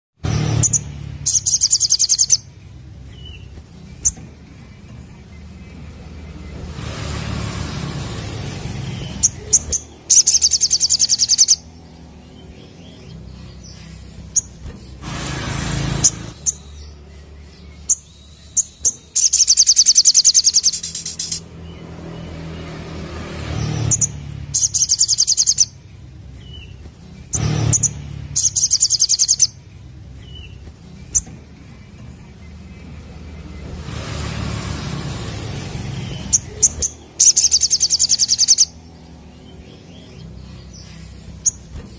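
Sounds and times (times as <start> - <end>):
broad rushing noise: 0.2 - 17.9, 18.8 - 41.9
high-pitched bird trills: 0.4 - 2.5, 8.9 - 14.6, 16.0 - 21.5, 23.8 - 25.8, 26.4 - 29.6, 36.2 - 38.8.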